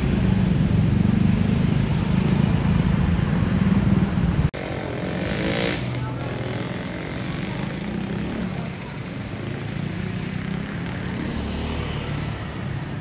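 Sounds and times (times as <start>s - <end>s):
vehicle engines humming: 0.0s - 13.0s.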